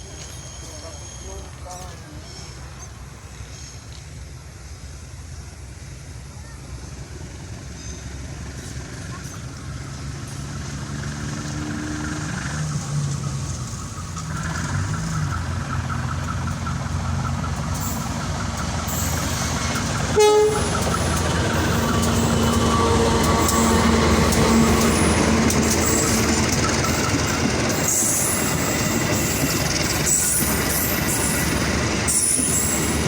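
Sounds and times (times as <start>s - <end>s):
diesel locomotive engine: 0.0s - 33.0s
train horn toot: 20.1s - 26.3s.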